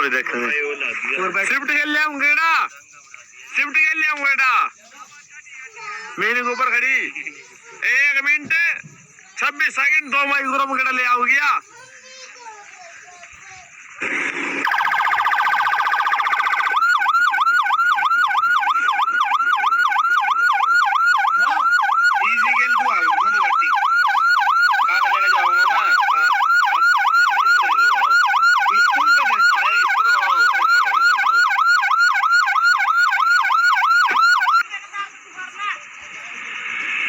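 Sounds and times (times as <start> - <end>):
electronic siren yelping: 14.6 - 34.6.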